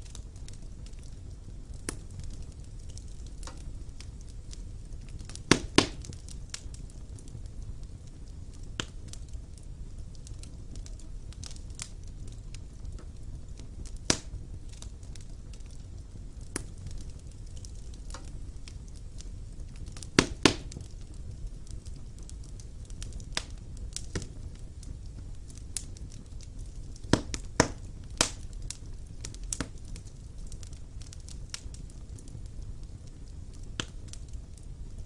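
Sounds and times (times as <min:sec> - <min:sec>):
fire crackling in a fireplace: 0:00.0 - 0:35.0
sharp pops of fire: 0:00.0 - 0:35.0.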